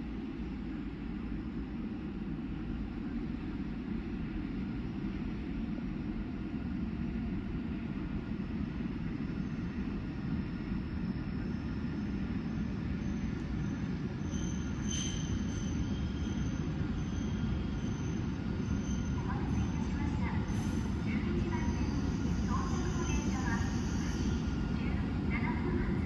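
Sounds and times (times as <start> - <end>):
high-pitched brake squeal: 13.0 - 19.8, 21.6 - 24.5.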